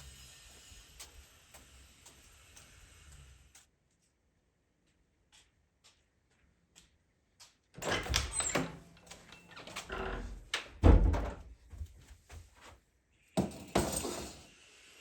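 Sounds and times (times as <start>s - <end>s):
knocks and clatter: 7.8s - 12.0s.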